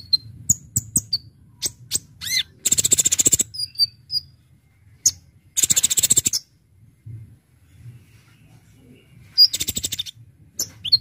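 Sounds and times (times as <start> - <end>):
rapid rattling bird trills: 0.0 - 4.3, 5.0 - 6.5, 9.4 - 11.0
sunbird singing: 0.0 - 6.6, 8.8 - 11.0.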